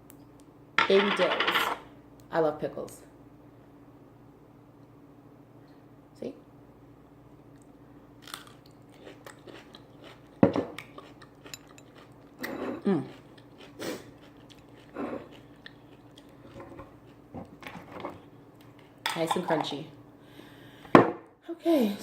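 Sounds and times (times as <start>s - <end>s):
crunchy pickle bite and chewing: 7.6s - 17.6s.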